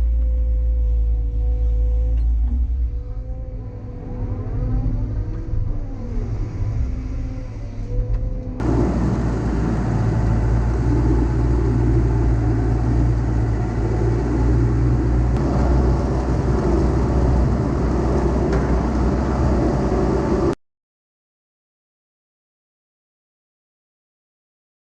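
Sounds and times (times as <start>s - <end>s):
heavy diesel engine running: 8.6s - 20.6s.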